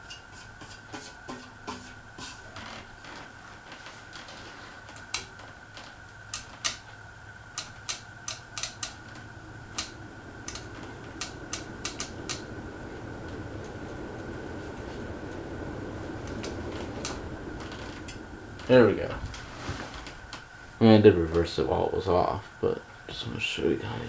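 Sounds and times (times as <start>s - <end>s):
ceiling fan humming and whining: 0.0s - 24.0s
sharp irregular clicks: 7.5s - 12.6s.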